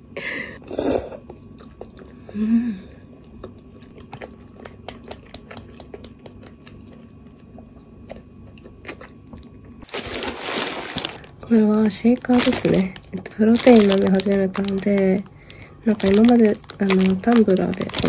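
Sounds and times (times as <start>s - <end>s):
wet chewing clicks: 1.2s - 9.8s.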